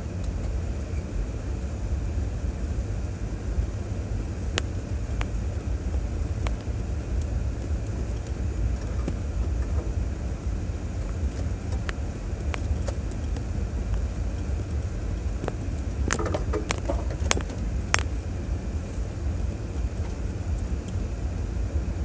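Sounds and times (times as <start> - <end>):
vehicle low rumble: 0.0 - 22.0
clicks and rattles: 11.1 - 18.2.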